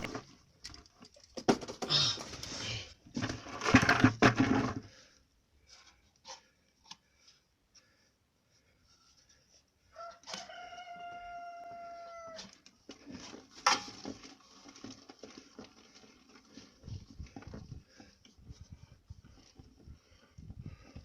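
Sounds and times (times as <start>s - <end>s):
rooster crowing: 10.0s - 12.5s.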